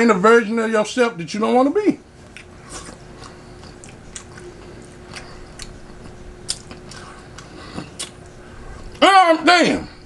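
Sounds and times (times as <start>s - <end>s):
faint steady hum: 0.0s - 10.0s
person chewing food: 2.2s - 9.0s.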